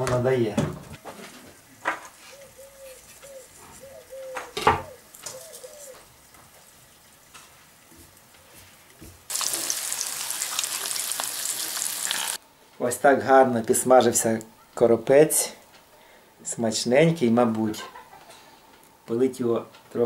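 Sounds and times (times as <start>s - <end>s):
food sizzling in hot oil: 9.3s - 12.4s.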